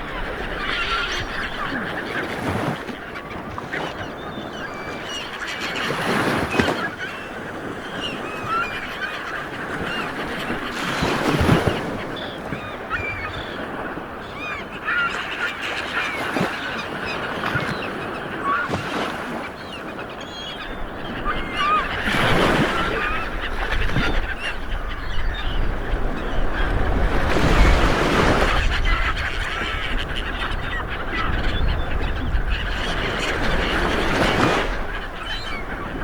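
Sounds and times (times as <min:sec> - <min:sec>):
birds chirping: 0:00.0 - 0:36.0.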